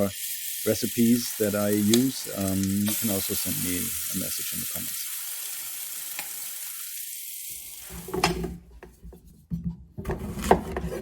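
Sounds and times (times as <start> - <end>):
pancakes sizzling in a frying pan: 0.0 - 8.1.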